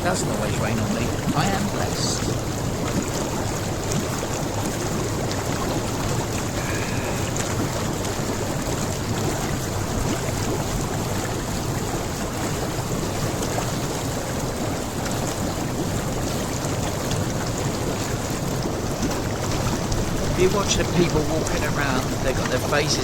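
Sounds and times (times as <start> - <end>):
hot tub jets bubbling water: 0.0 - 23.0.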